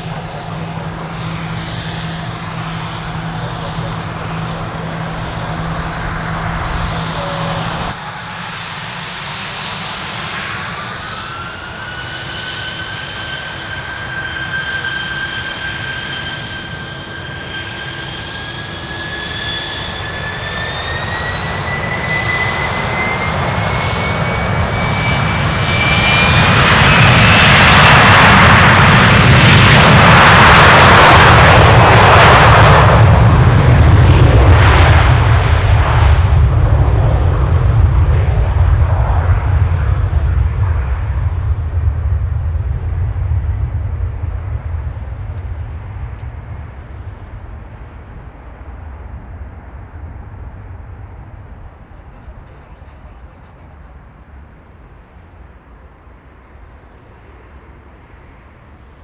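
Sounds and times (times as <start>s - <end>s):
other engine running: 0.0s - 8.0s
jet engines spooling up: 0.0s - 53.3s
jet engine roar: 0.0s - 59.0s.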